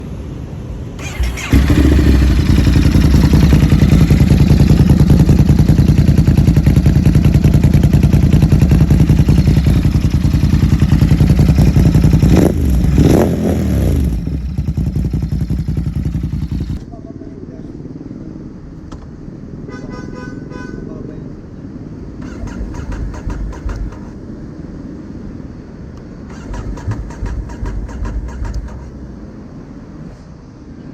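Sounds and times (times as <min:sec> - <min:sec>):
motorcycle engine revving: 0:01.0 - 0:16.8, 0:22.2 - 0:24.2, 0:26.3 - 0:29.2
motorcycle engine running: 0:01.0 - 0:16.8, 0:22.2 - 0:24.2, 0:26.3 - 0:29.2.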